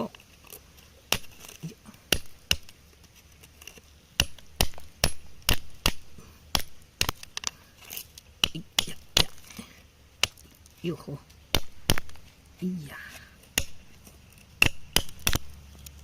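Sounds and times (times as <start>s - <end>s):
hand tool striking rock: 1.1s - 2.8s, 3.6s - 9.6s, 10.2s - 10.6s, 11.5s - 12.3s, 13.4s - 15.6s.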